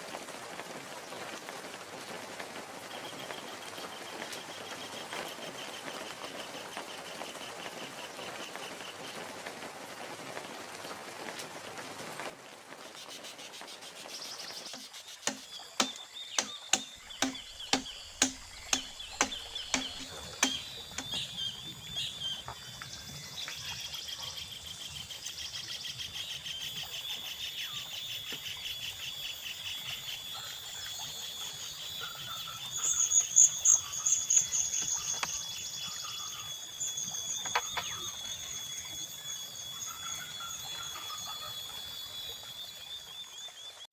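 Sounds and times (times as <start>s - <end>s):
insects buzzing and chirping: 2.6s - 10.4s, 12.7s - 43.8s
tool striking bamboo: 12.9s - 21.2s.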